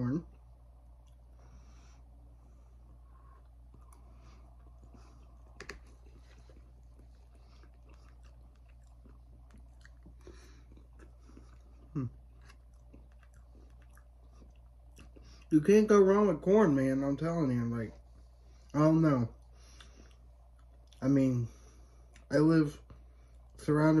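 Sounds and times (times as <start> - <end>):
chewing corn kernels: 0.3 - 1.4, 2.8 - 15.7, 18.6 - 23.6.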